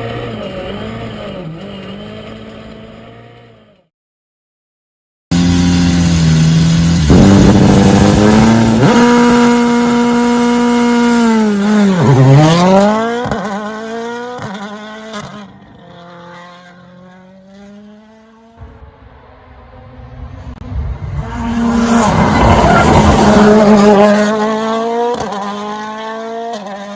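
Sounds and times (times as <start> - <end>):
rally car engine revving: 5.3 - 26.9.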